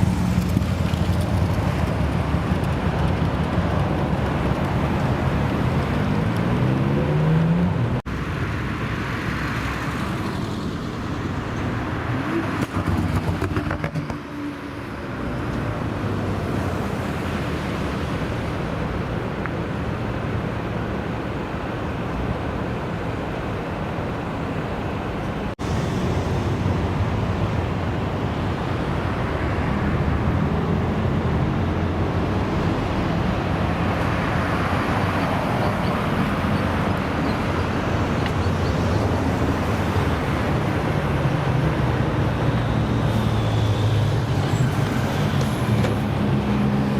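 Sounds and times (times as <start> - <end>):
car engines accelerating: 0.0 - 18.0.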